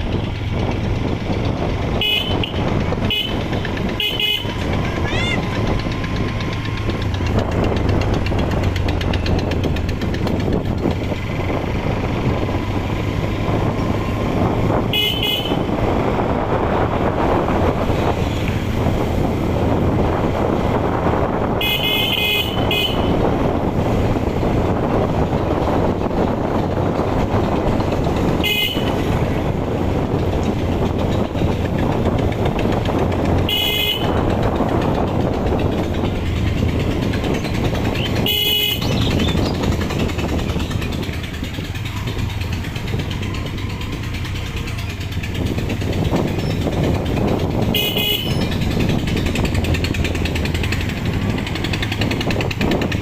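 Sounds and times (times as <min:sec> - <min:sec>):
motorcycle engine running: 0:00.0 - 0:53.0
wind noise: 0:00.0 - 0:53.0
vehicle horn honks: 0:02.0 - 0:04.7, 0:14.8 - 0:15.8, 0:21.5 - 0:23.3, 0:28.4 - 0:29.2, 0:33.4 - 0:34.3, 0:38.0 - 0:39.1, 0:47.7 - 0:48.5.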